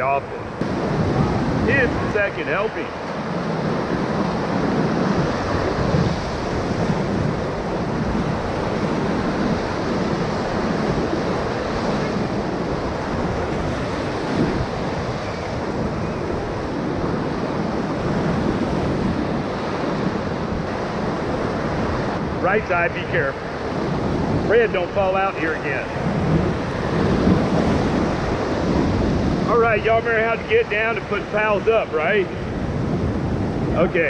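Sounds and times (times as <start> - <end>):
whitewater rushing and splashing: 0.0 - 34.0.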